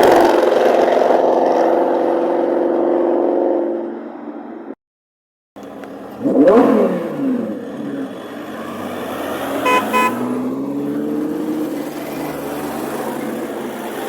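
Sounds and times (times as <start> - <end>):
street traffic: 0.0 - 4.8, 5.6 - 14.0
car engine running: 5.6 - 13.9
car horn toots: 9.6 - 10.4.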